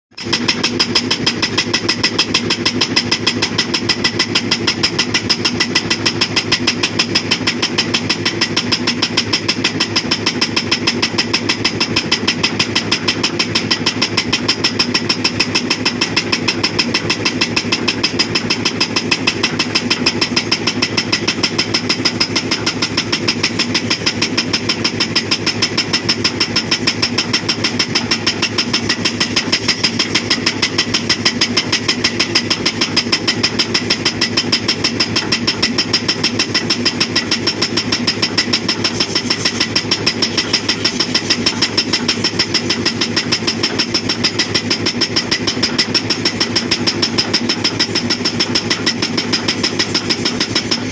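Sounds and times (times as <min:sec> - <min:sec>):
excavator engine running: 0:00.1 - 0:50.9
hydraulic breaker hammering rock: 0:00.2 - 0:50.9.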